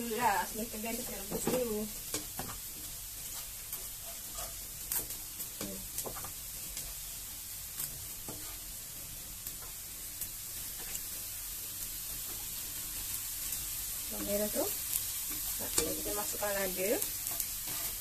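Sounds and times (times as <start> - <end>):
wooden spatula scraping a pan: 0.0 - 9.0, 14.1 - 18.0
onions sizzling in hot oil: 0.0 - 18.0.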